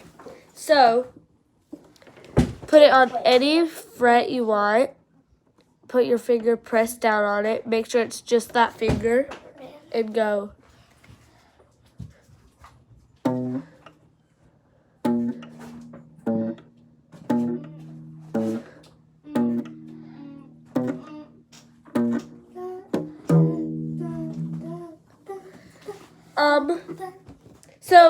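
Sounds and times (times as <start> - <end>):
guitar notes picked singly: 13.2 - 13.7, 15.0 - 25.5.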